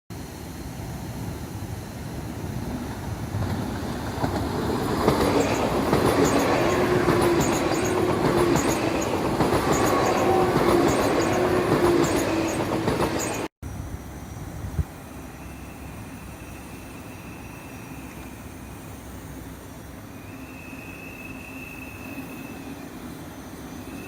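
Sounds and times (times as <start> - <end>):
train wheels clattering on rails: 2.4 - 13.5.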